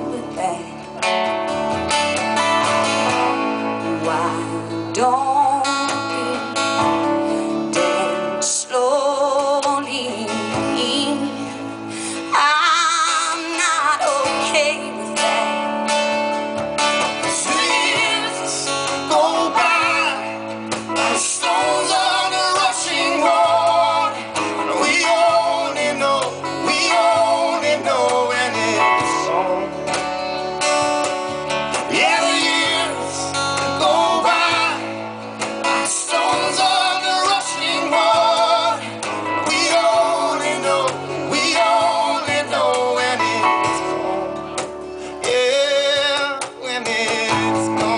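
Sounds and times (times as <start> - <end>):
woman singing with vibrato: 0.0 - 0.8, 3.7 - 6.9, 7.8 - 15.7, 17.3 - 20.3
guitar: 0.0 - 47.9
low band backing: 0.0 - 47.9.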